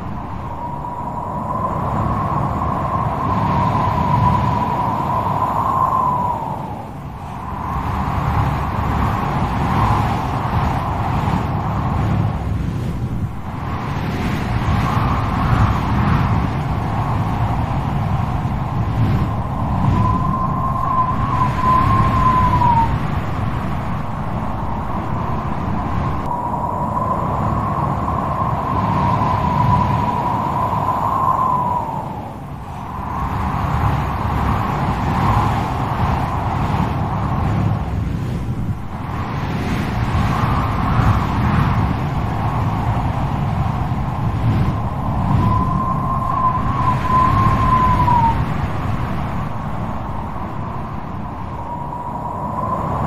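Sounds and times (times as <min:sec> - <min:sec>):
strong wind rushing: 0:00.0 - 0:53.0
wind whistling howl: 0:00.0 - 0:53.0
thin steady whistle: 0:19.3 - 0:23.1, 0:43.7 - 0:48.8, 0:51.5 - 0:53.0.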